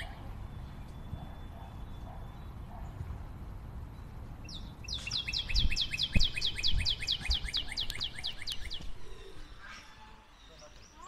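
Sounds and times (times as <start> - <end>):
bird calling rapid notes: 4.5 - 10.5.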